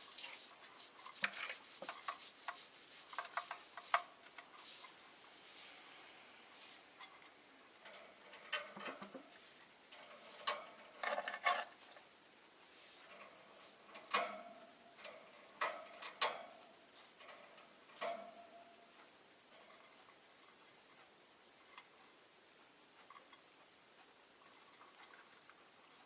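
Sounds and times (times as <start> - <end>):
birds clicking and tapping in cage: 1.0 - 5.0, 7.0 - 12.0, 13.0 - 21.0, 24.4 - 26.0.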